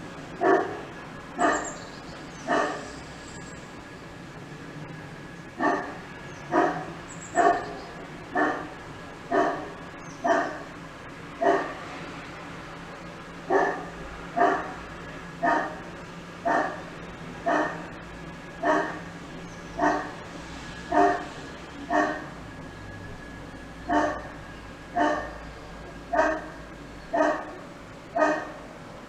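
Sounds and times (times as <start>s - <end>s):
dog barking: 0.4s - 0.8s, 1.4s - 1.8s, 2.4s - 2.9s, 5.6s - 10.7s, 11.4s - 11.8s, 13.5s - 14.8s, 15.4s - 17.9s, 18.6s - 19.0s, 19.8s - 20.2s, 20.9s - 21.3s, 21.9s - 22.3s, 23.9s - 24.3s, 24.9s - 25.4s, 26.1s - 27.6s, 28.2s - 28.6s.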